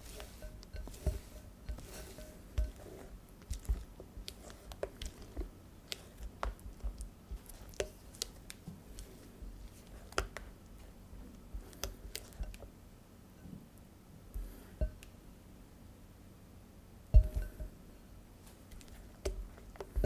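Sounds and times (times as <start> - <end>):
utensil tapping bowl: 0.0 - 10.5, 11.5 - 12.7, 14.4 - 15.1, 17.1 - 17.8, 18.8 - 20.0
batter squishing: 0.0 - 12.7, 18.4 - 20.0.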